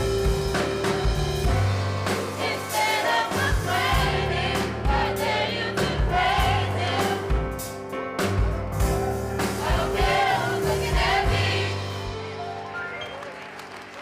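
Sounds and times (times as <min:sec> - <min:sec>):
bass notes: 0:00.0 - 0:12.4
drums: 0:00.0 - 0:13.1
keyboard: 0:00.0 - 0:14.0
gospel choir singing: 0:02.0 - 0:07.8, 0:08.9 - 0:12.3.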